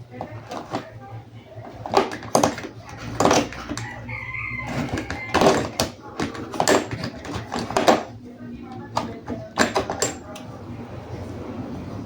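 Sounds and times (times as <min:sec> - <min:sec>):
plastic toys clicking and knocking: 0:00.1 - 0:00.9, 0:01.6 - 0:08.1, 0:08.7 - 0:10.4.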